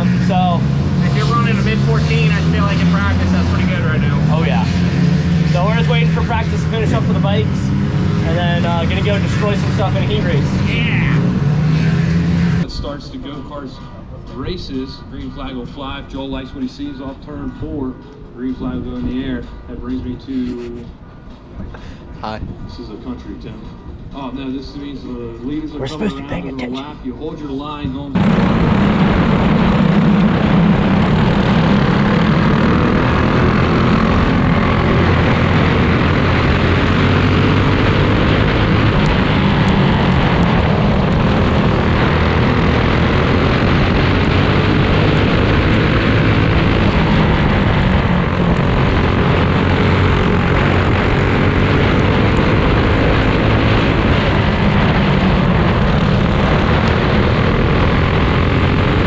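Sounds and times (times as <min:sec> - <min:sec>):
go-kart engines racing: 0:00.0 - 0:12.7, 0:29.4 - 0:59.0.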